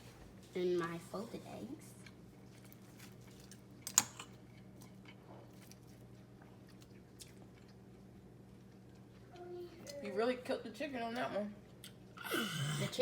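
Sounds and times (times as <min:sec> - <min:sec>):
faint steady hum: 0:00.0 - 0:13.0
person chewing: 0:02.0 - 0:10.0.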